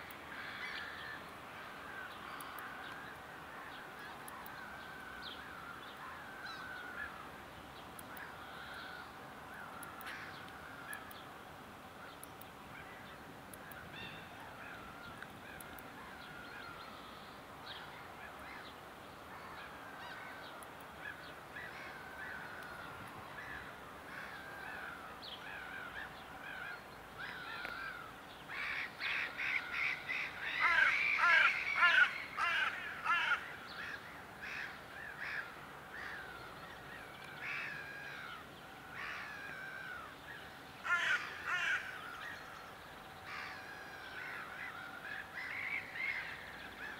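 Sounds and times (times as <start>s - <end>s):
faint steady tone: 0.0s - 46.9s
birds harsh calls: 0.3s - 46.9s.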